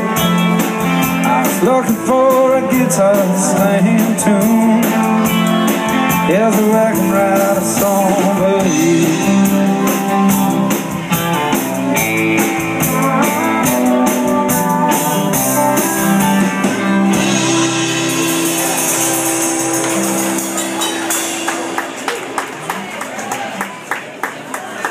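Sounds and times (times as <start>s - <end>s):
country band playing: 0.0s - 24.0s
ringing cymbals: 18.0s - 22.2s.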